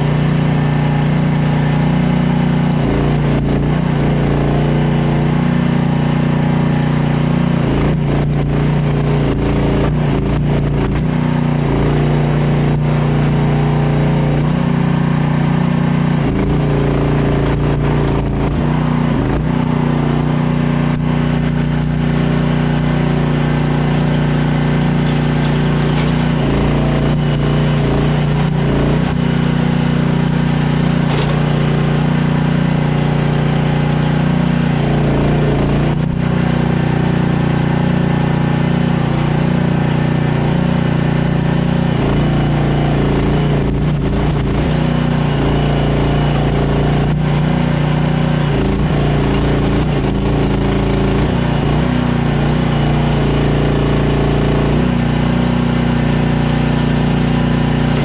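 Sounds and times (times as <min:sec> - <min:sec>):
engine running steadily: 0:00.0 - 0:58.0
machine rattles: 0:21.3 - 0:33.6.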